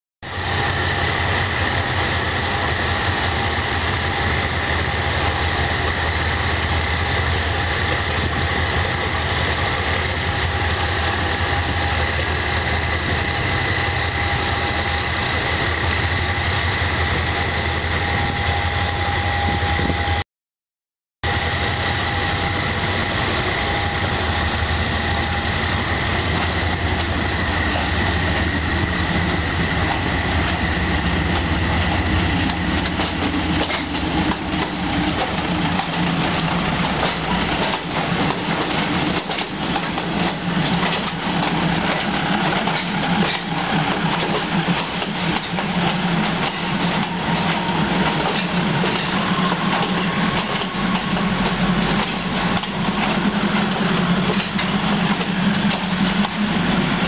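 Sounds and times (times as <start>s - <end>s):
diesel railcar engine hum: 0.2s - 20.2s, 21.2s - 57.0s
wheels clacking over rail joints: 26.2s - 56.6s.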